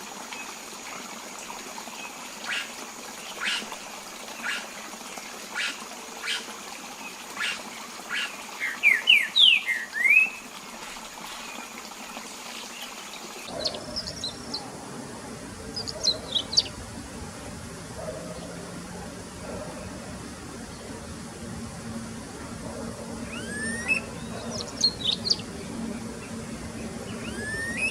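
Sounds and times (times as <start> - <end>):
songbirds calling: 0.3 - 10.5, 11.3 - 21.2, 21.9 - 27.9
rising whistled bird notes: 23.3 - 24.1, 27.2 - 27.9.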